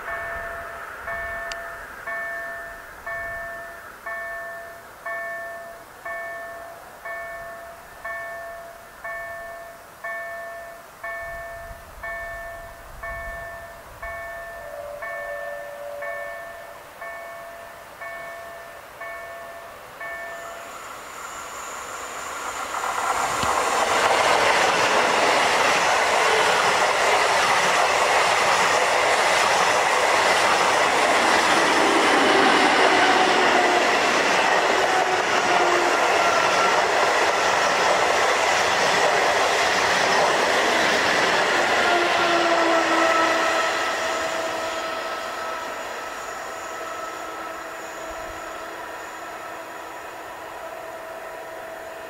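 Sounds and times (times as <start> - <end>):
train whine: 0.0 - 52.0
wheels rushing on rail: 0.0 - 52.0.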